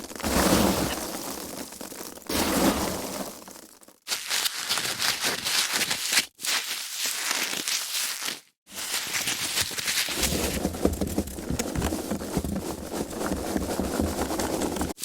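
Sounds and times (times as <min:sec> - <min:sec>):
foam packaging crackling: 0:03.8 - 0:15.0.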